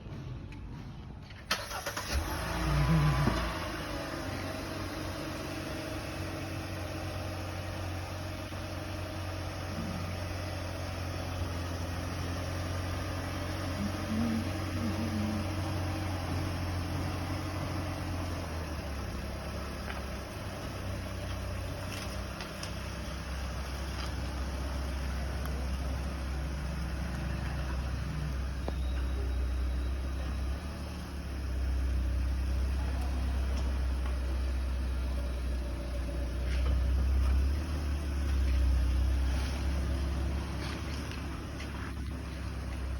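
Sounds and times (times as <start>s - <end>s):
car engine starting and idling: 0.0s - 42.9s.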